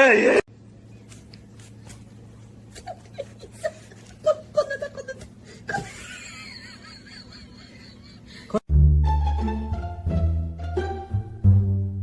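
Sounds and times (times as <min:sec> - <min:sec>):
person laughing: 0:02.6 - 0:08.6.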